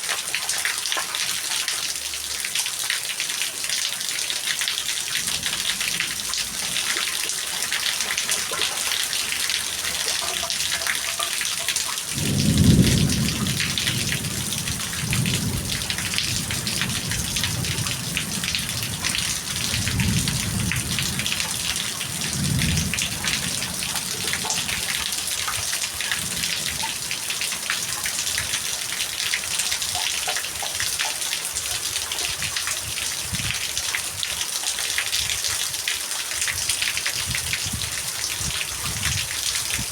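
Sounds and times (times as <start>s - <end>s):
heavy rain: 0.0s - 39.9s
thunder rumbling: 5.1s - 8.4s, 12.1s - 27.1s.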